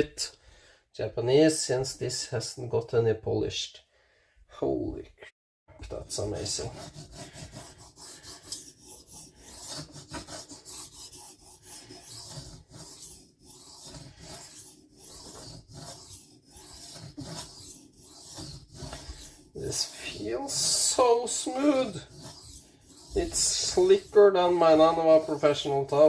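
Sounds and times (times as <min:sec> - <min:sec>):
knife scraping on sharpening plate: 0:08.0 - 0:20.8, 0:21.6 - 0:25.6.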